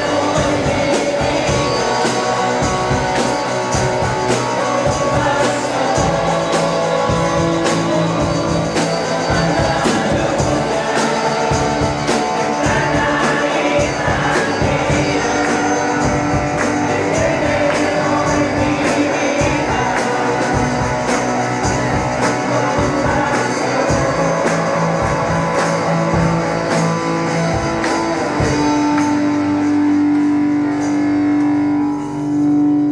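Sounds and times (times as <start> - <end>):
people singing: 0.0 - 29.3
steady drum beat: 0.0 - 30.9
guitar: 0.0 - 32.9
worship band playing: 0.0 - 32.9.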